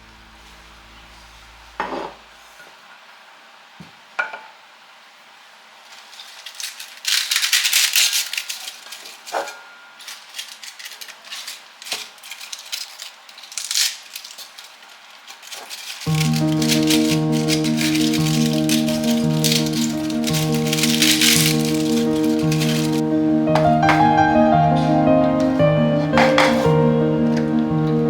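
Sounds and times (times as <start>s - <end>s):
rustling hiss: 10.1s - 28.0s
background music: 16.1s - 28.0s
dishes clinking: 16.2s - 28.0s.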